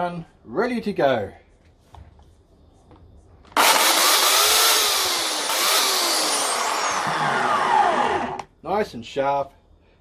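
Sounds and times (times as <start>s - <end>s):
electric chainsaw running: 3.6s - 8.4s
motor spinning down whine: 3.6s - 8.4s.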